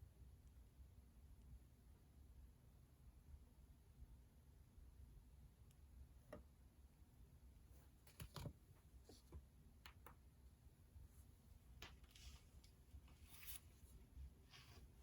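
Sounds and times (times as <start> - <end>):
faint clicks and taps of pens: 5.6 - 6.6, 8.0 - 10.3.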